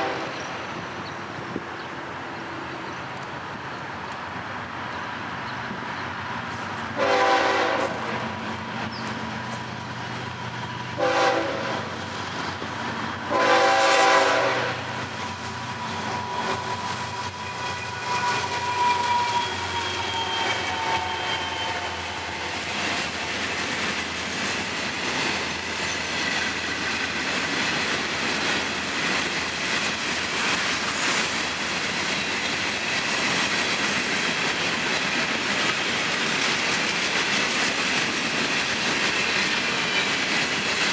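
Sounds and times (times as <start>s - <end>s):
train horn: 0.0s - 0.6s, 7.0s - 8.3s, 11.0s - 12.0s, 13.3s - 15.0s, 17.3s - 23.2s
high wheel squeal: 15.5s - 23.6s.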